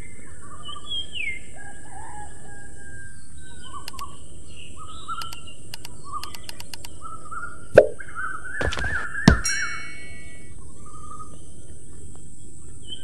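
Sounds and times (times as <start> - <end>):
outdoor background noise: 0.0 - 13.0
sharp clicks: 3.9 - 4.2, 5.2 - 7.0.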